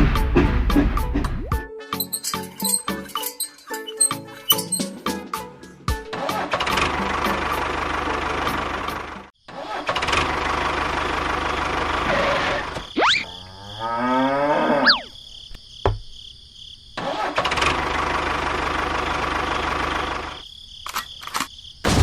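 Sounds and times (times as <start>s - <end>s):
small engine running: 6.4s - 9.3s, 9.9s - 12.7s, 17.3s - 20.4s.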